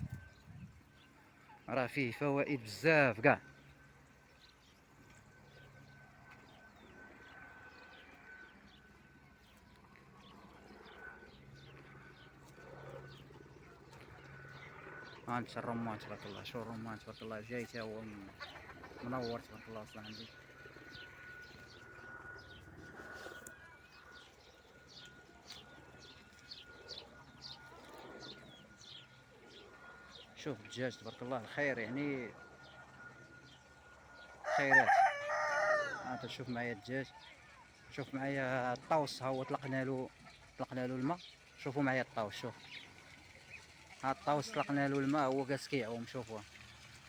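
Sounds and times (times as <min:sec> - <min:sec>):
small birds chirping: 0:00.0 - 0:34.3, 0:36.9 - 0:47.0.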